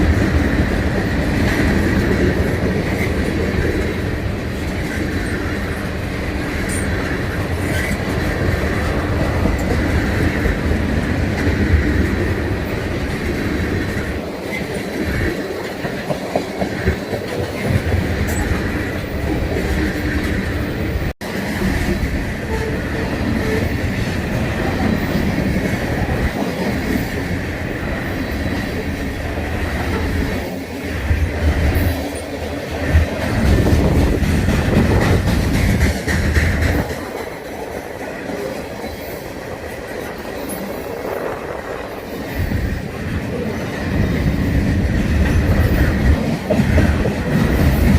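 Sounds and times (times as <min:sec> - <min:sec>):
freight train rumble: 0:00.0 - 0:47.9
train wheels clicking over rail joints: 0:00.0 - 0:47.9.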